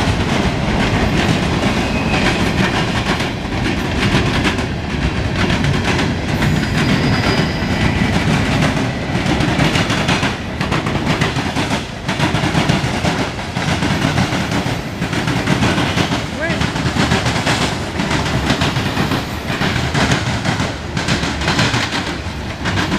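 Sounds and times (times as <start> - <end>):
freight train rumbling past: 0.0 - 22.9.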